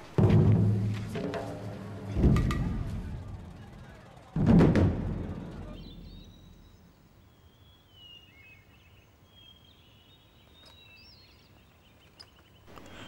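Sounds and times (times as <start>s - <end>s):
low boom: 2.0s - 6.6s
birds chirping high wavering calls: 5.5s - 13.0s.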